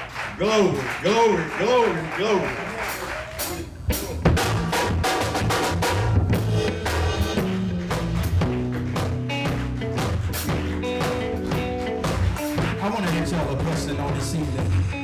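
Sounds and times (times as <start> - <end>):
drum kit with rimshots: 2.7 - 15.0
low bass line: 3.8 - 15.0.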